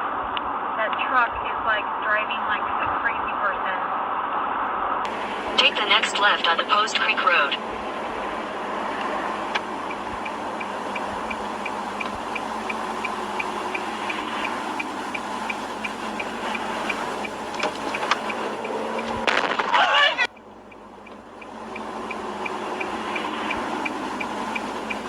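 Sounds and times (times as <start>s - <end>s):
road and engine noise: 0.0s - 25.0s
turn signal ticking: 5.0s - 25.0s.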